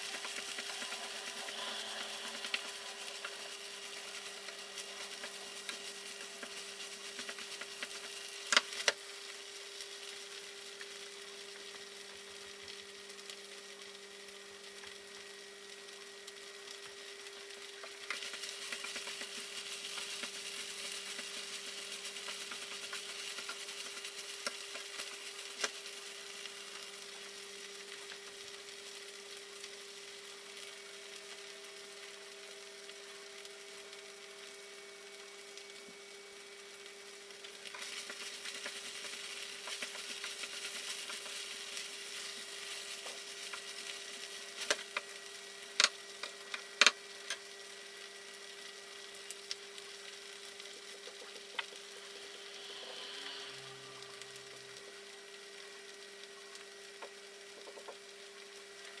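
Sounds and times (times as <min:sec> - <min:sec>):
spatula stirring in pan: 0:00.0 - 0:10.0, 0:17.8 - 0:26.9, 0:37.5 - 0:45.1
steady low hum: 0:00.0 - 0:11.8
food sizzling in a frying pan: 0:00.0 - 0:59.0.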